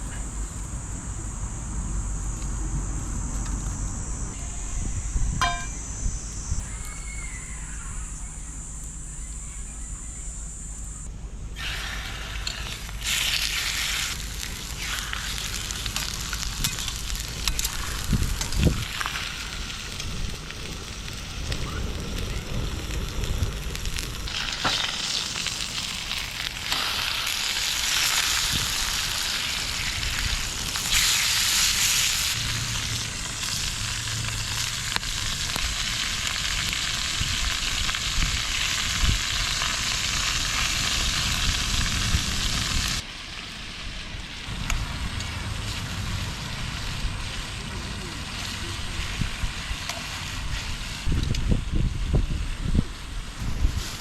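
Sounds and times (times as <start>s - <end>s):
food sizzling in a hot pan: 11.6s - 43.0s.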